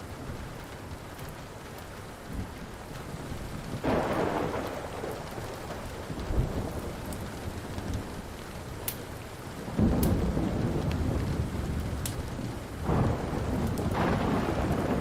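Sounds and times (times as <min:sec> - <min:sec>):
steady rain: 0:00.0 - 0:15.0
wood fire crackling: 0:00.0 - 0:15.0
thunder rumbling: 0:03.1 - 0:08.7, 0:09.5 - 0:15.0.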